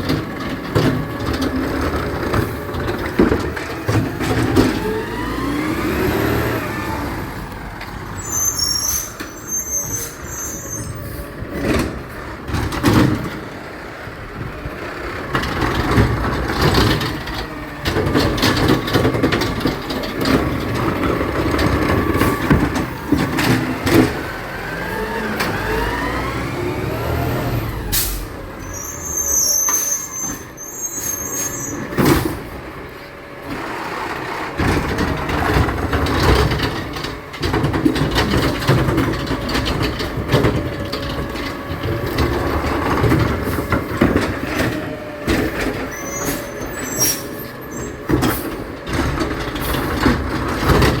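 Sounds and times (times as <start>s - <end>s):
garbage truck engine: 0.0s - 51.0s
short high squeaks: 8.2s - 11.2s, 28.6s - 31.9s, 45.9s - 48.0s.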